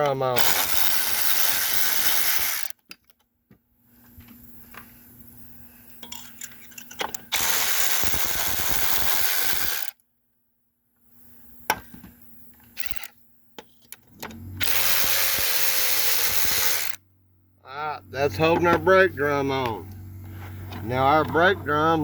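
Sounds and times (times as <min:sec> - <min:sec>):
cordless power tool spinning bolts: 0:00.4 - 0:02.8, 0:07.3 - 0:10.0, 0:12.8 - 0:13.1, 0:14.2 - 0:17.0.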